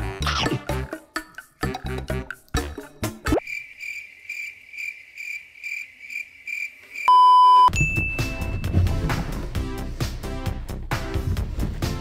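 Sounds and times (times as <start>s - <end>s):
cricket chirping: 3.4s - 7.3s
steady test-tone beep: 7.1s - 8.6s.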